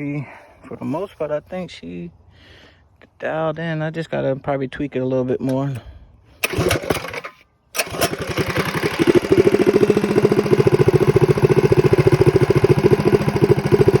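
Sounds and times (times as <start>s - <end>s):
small engine running: 6.4s - 14.0s.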